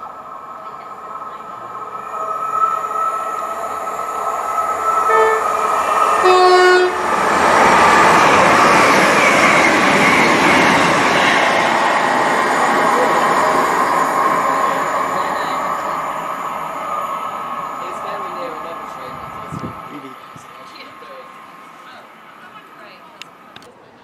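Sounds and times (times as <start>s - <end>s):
train rushing past: 0.0s - 24.0s
two-tone train horn: 4.8s - 7.2s.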